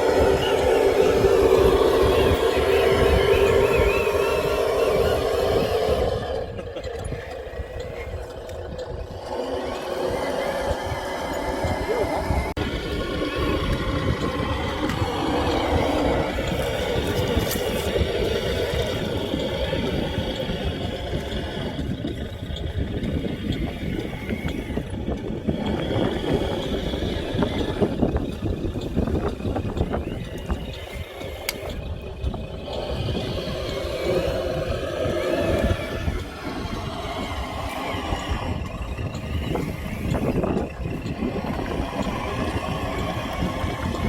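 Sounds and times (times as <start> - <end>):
dense low rumble: 0.0 - 44.0
small electric motors whirring: 0.0 - 44.0
small clicks and scrapes: 16.3 - 44.0.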